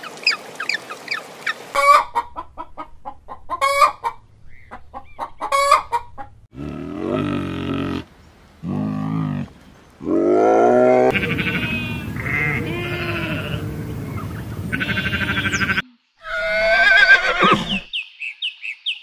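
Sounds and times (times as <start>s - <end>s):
farm animal calls: 3.5s - 17.9s
high wavering animal call: 11.0s - 17.9s.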